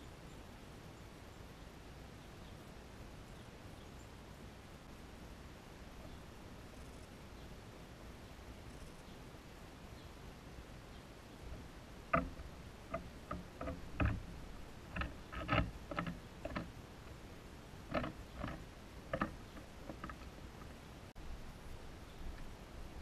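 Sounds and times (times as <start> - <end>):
woodpecker pecking at feeder: 11.4 - 17.2, 17.8 - 20.8.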